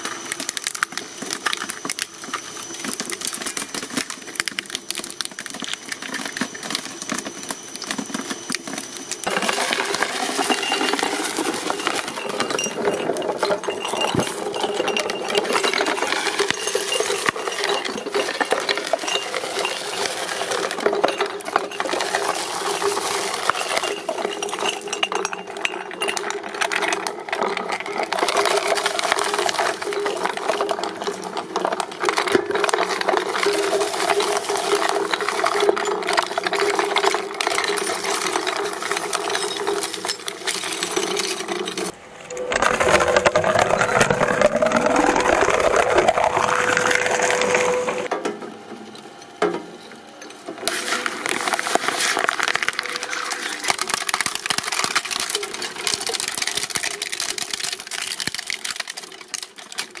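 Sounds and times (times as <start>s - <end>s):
machine hum: 0.0s - 49.2s
rising mechanical whine: 42.0s - 48.1s.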